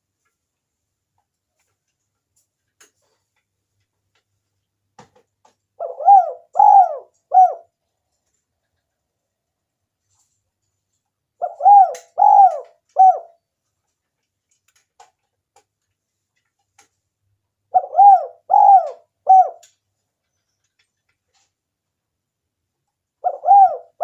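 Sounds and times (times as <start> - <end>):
dove cooing: 5.8 - 7.7, 11.4 - 13.4, 17.7 - 19.7, 23.2 - 24.0.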